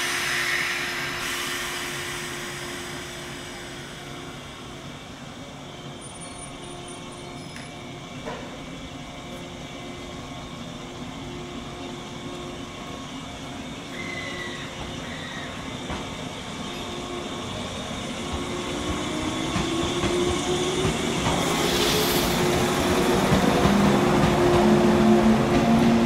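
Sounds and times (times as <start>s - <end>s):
electric train rumbling slowly: 0.0s - 26.0s
train wheel clack: 6.1s - 8.6s, 18.1s - 26.0s.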